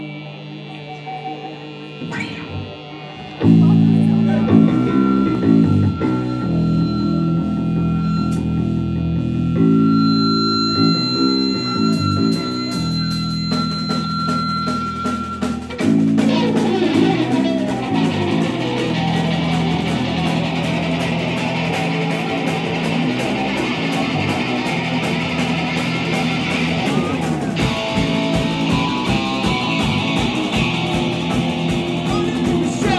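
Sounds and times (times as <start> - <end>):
electric guitar and bass chords: 0.0 - 32.9
rock band playing live: 2.0 - 32.9
drum beat of sharp hits: 13.5 - 32.9.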